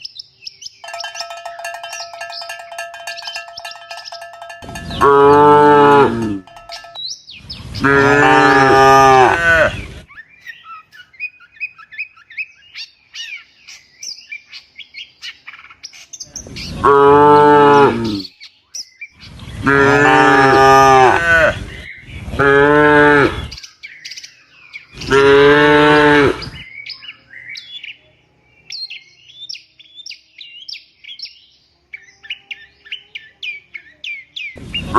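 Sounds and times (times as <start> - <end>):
cattle mooing: 5.0 - 6.6, 7.8 - 9.8, 19.7 - 21.6, 25.1 - 26.6
small birds chirping: 26.4 - 34.9.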